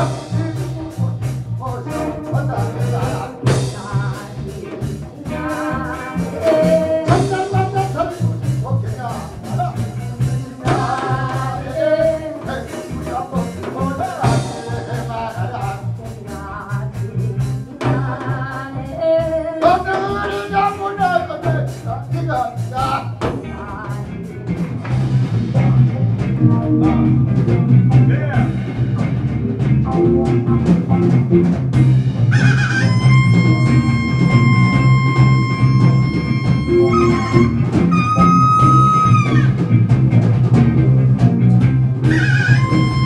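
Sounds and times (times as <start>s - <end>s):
drum kit hits: 0.0s - 16.4s, 19.6s - 43.0s
electric bass line: 0.0s - 43.0s
sliding pitch-bending melody: 32.3s - 39.6s, 42.1s - 43.0s.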